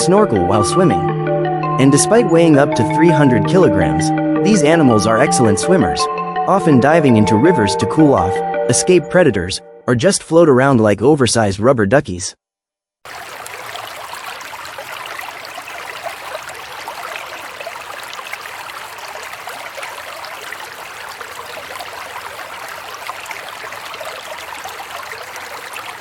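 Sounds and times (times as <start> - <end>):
stream water rushing: 13.1 - 26.0.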